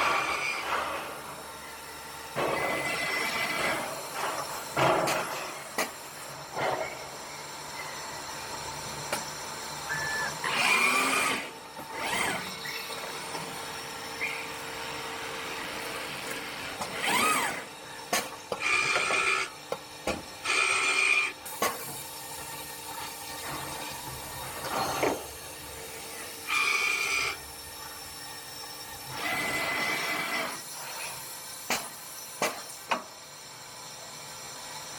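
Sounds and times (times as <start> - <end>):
machine whine: 0.0 - 21.5
machine mechanical hum: 0.0 - 34.9.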